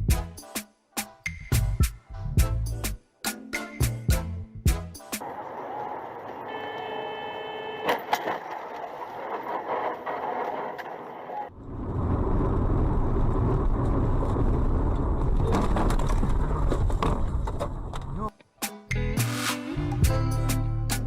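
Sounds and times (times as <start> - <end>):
road and engine rumble: 5.2 - 18.3.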